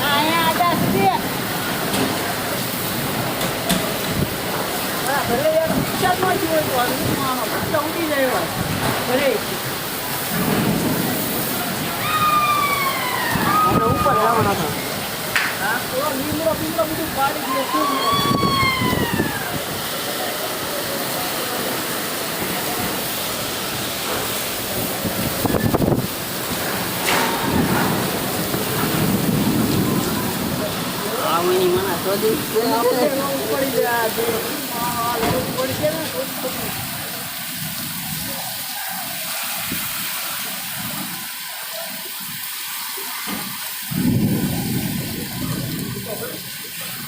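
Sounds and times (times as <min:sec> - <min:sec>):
heavy rain: 0:00.0 - 0:47.0
strong wind rushing: 0:10.4 - 0:15.2, 0:18.0 - 0:19.9, 0:24.6 - 0:31.1, 0:43.9 - 0:46.1
wind rushing: 0:43.9 - 0:46.0.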